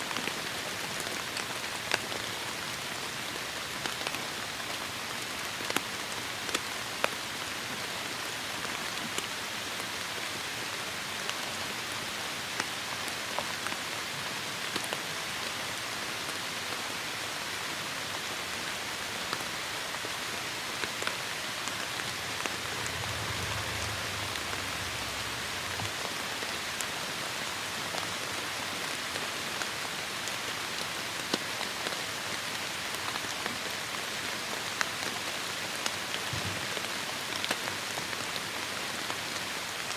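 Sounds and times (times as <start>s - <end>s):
heavy rain falling: 17.4s - 39.9s
brief low rumble: 21.6s - 26.4s.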